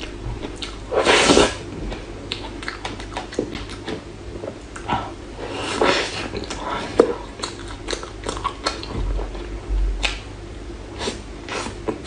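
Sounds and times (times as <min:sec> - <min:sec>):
wet mouth clicks while chewing: 0:02.3 - 0:04.0, 0:07.4 - 0:09.0, 0:10.0 - 0:10.2.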